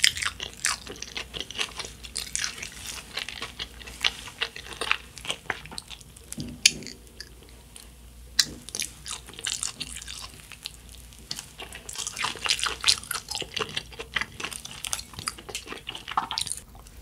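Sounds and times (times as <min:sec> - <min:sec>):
chewing mouth clicks and smacks: 0:08.4 - 0:16.9.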